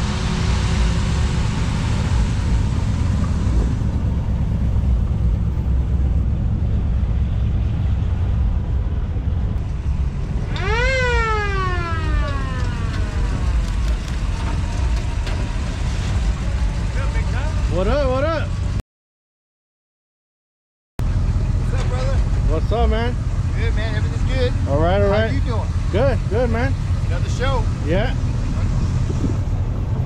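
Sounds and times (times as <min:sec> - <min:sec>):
car engines rumbling: 0:00.0 - 0:18.8, 0:21.0 - 0:30.0
siren-like wail: 0:10.4 - 0:13.7.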